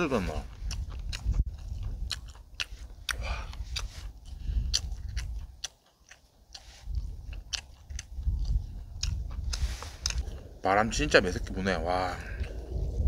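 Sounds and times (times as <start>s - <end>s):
wind buffeting microphone: 0.0s - 5.7s, 6.8s - 13.0s
wet chewing mouth clicks: 0.1s - 10.6s.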